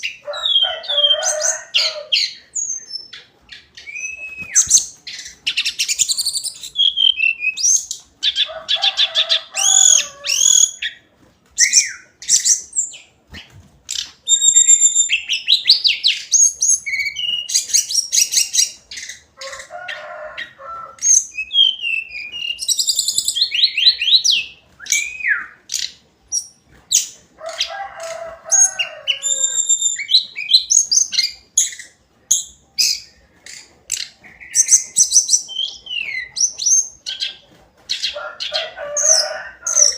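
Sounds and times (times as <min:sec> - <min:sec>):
bird singing whistled song: 0:03.8 - 0:08.0, 0:11.6 - 0:13.5, 0:14.3 - 0:18.7, 0:21.1 - 0:27.1, 0:29.2 - 0:33.1.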